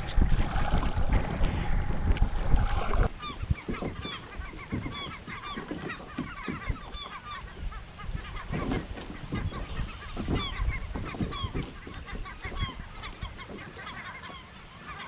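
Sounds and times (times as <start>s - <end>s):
wind and water noise: 0.0s - 15.0s
flock of birds calling: 3.1s - 15.0s.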